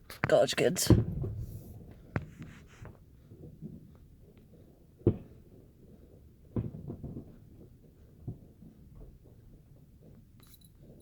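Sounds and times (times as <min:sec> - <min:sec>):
small firework pops: 0:00.0 - 0:09.6
distant fireworks bangs: 0:00.1 - 0:09.3.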